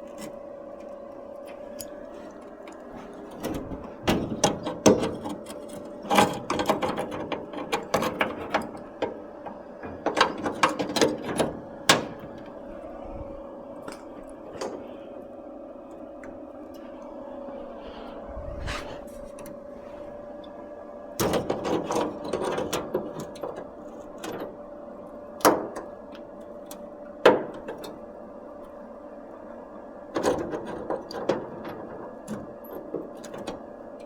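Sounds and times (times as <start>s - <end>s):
steady hum: 0.0s - 25.4s.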